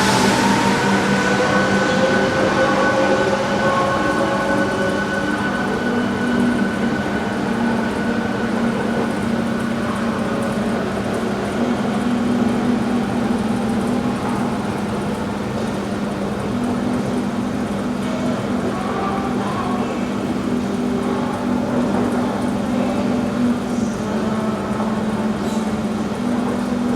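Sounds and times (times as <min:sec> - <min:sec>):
high train whine: 0:00.0 - 0:26.9
metro train mechanical hum: 0:00.0 - 0:26.9.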